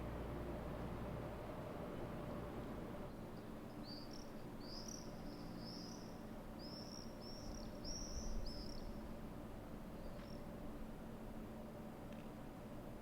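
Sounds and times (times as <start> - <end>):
low background rumble: 0.0 - 13.0
bird chirping: 3.4 - 8.9.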